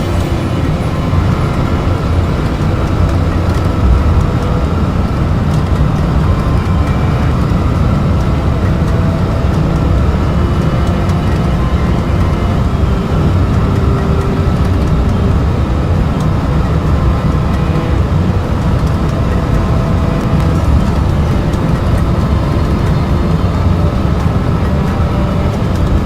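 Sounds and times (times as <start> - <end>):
low rumble of airflow and engines: 0.0 - 26.0.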